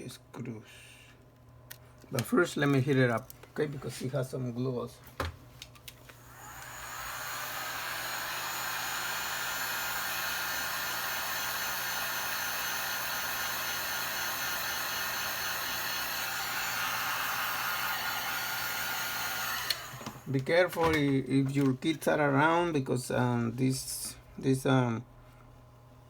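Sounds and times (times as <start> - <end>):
heat gun blowing whir: 6.1 - 21.0.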